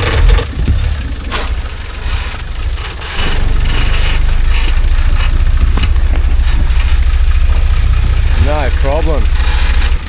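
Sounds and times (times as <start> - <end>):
truck engine at low revs: 0.0 - 10.0.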